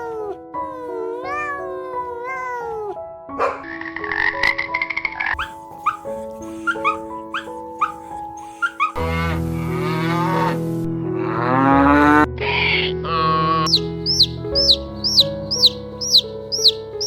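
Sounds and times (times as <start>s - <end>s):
light background music: 0.0s - 17.0s
short rising calls: 5.4s - 9.0s, 13.7s - 16.8s
cow mooing: 11.2s - 12.3s.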